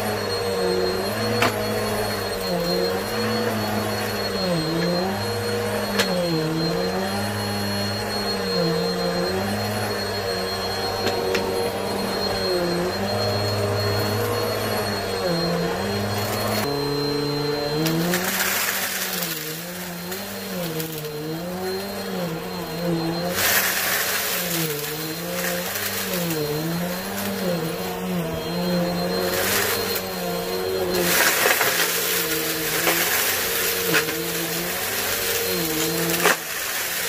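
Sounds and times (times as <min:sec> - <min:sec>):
vacuum cleaner motor running: 0:00.0 - 0:37.0.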